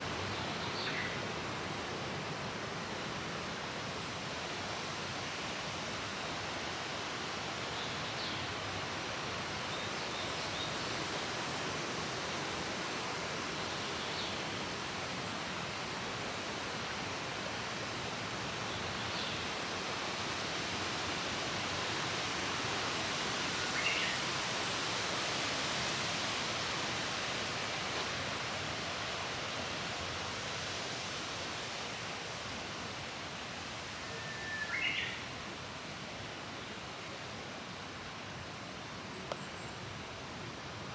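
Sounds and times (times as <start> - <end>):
flowing water rushing: 1.2 - 39.2
bird short high calls: 34.0 - 35.3.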